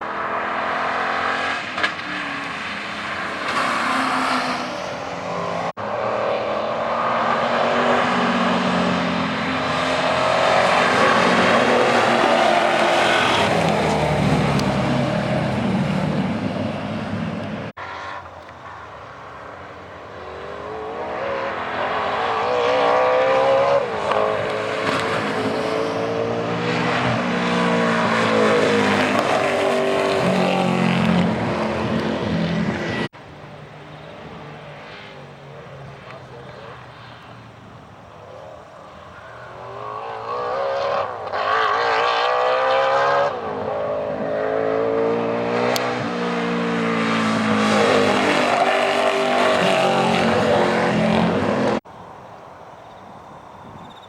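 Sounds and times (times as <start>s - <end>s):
race car engine revving: 39.2s - 51.8s.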